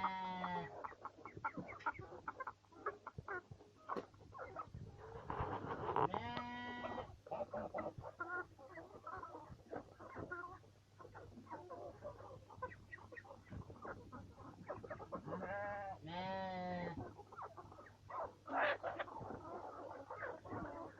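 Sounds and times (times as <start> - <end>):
long bleat-like calls: 0.0 - 0.7, 6.0 - 7.1, 15.3 - 17.0
poultry clucking and peeping: 0.0 - 20.9.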